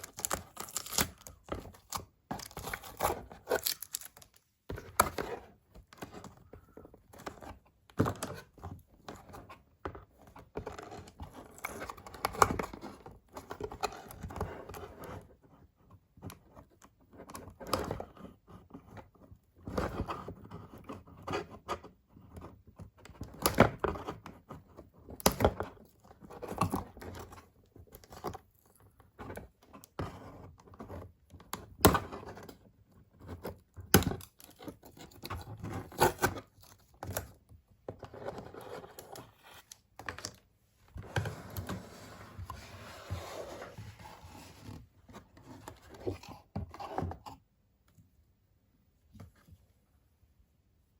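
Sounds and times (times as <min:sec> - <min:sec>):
packaging tearing: 0:00.0 - 0:04.4
packaging crinkling: 0:00.0 - 0:04.5.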